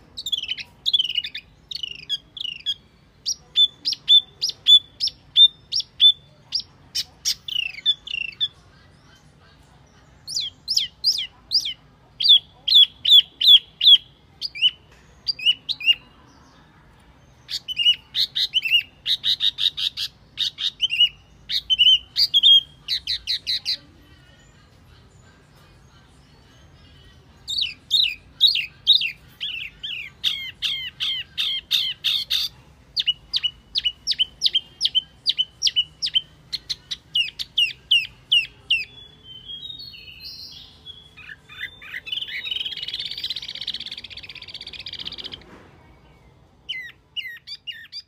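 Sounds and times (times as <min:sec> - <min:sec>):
bird chirping: 0:00.0 - 0:48.0
harsh rasping bird chatter: 0:17.4 - 0:23.8, 0:27.5 - 0:38.9, 0:41.2 - 0:45.4.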